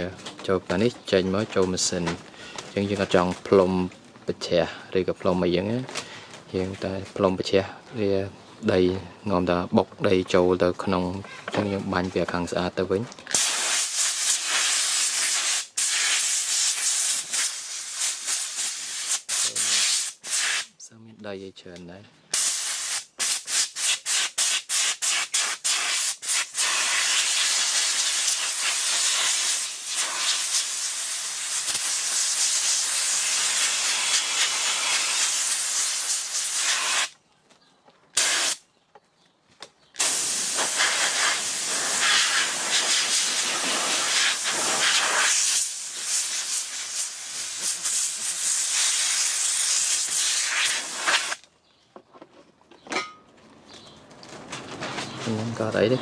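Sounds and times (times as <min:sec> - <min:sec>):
compressed air blow gun blasts: 0:13.3 - 0:20.7, 0:22.3 - 0:37.1, 0:38.2 - 0:38.6, 0:40.0 - 0:51.4.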